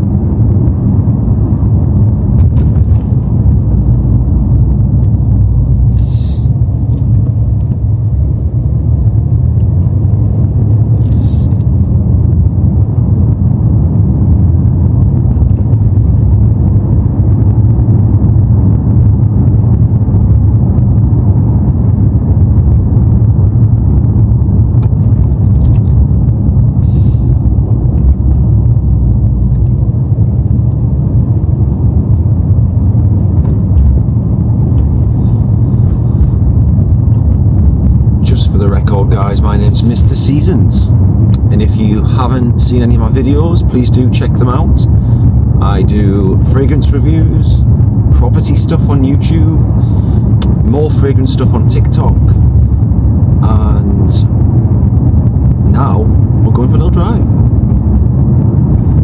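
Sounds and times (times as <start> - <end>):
car engine and road rumble: 0.0 - 59.0
short hisses: 6.0 - 6.6, 26.8 - 27.4.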